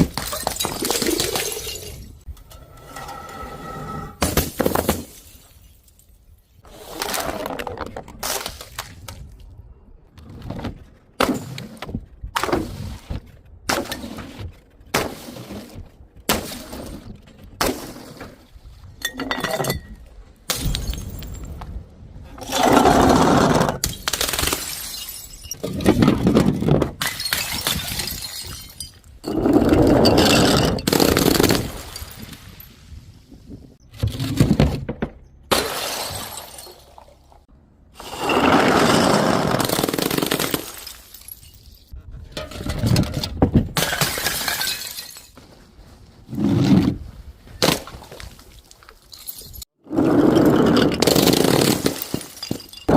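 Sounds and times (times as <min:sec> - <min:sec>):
glass bottles shattering: 0:00.0 - 0:02.2, 0:19.0 - 0:21.6, 0:23.8 - 0:26.3, 0:27.0 - 0:32.7, 0:35.5 - 0:37.3, 0:39.6 - 0:41.9, 0:43.8 - 0:45.4, 0:49.0 - 0:49.7, 0:50.4 - 0:52.9
glass crunching and scattering: 0:00.0 - 0:02.2, 0:23.8 - 0:29.2, 0:35.5 - 0:37.2, 0:39.6 - 0:41.9, 0:43.8 - 0:45.4, 0:50.9 - 0:52.9.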